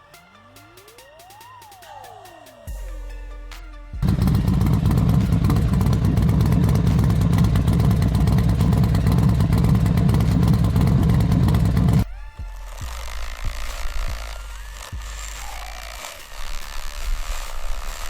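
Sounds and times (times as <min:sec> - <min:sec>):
engine chugging: 0:04.0 - 0:12.0.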